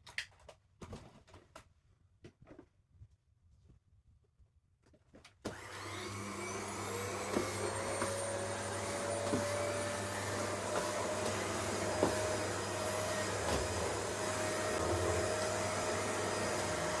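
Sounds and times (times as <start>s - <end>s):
vacuum cleaner motor whine: 5.5s - 17.0s.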